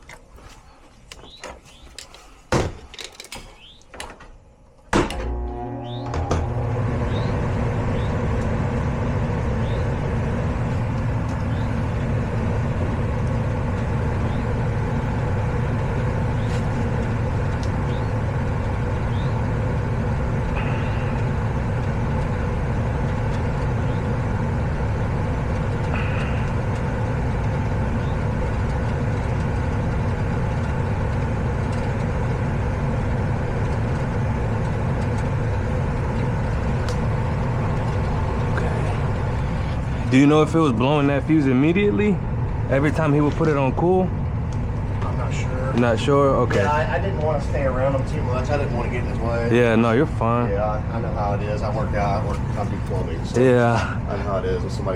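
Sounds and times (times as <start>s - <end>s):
air conditioning droning: 0.0s - 54.9s.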